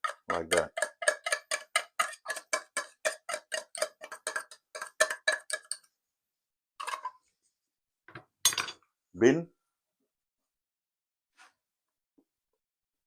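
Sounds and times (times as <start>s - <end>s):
utensil whisking in a bowl: 0.0s - 5.8s.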